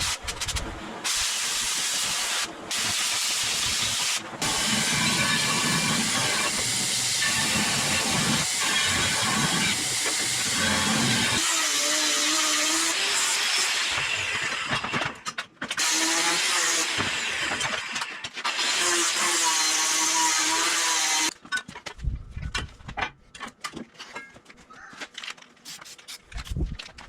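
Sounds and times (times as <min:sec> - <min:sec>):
drill boring through steel: 0:01.1 - 0:14.9, 0:15.8 - 0:21.3.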